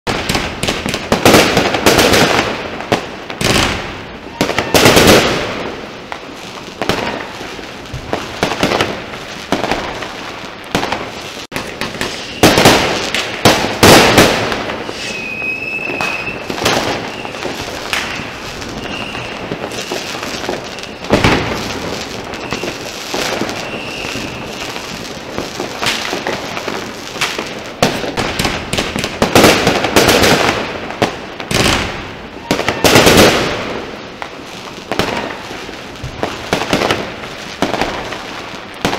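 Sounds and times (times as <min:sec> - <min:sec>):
dense firecracker crackle: 0:00.0 - 0:38.9
firework bangs: 0:00.1 - 0:38.9
thin high rocket whistle: 0:12.1 - 0:12.6, 0:14.8 - 0:20.2, 0:22.3 - 0:22.9, 0:23.5 - 0:24.7.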